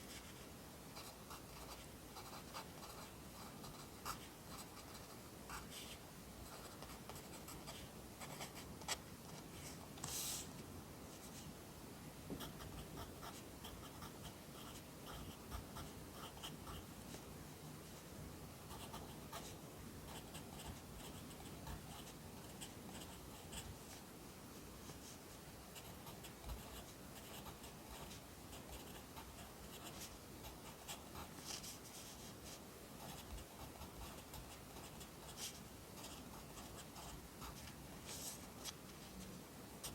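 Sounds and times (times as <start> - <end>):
pencil writing on paper: 12.4 - 16.9, 25.8 - 32.3, 33.0 - 38.4.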